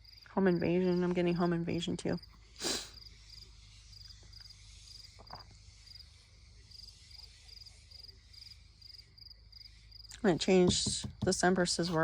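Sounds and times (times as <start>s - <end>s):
crickets chirping: 0.0s - 10.6s
soft knock: 10.7s - 11.5s.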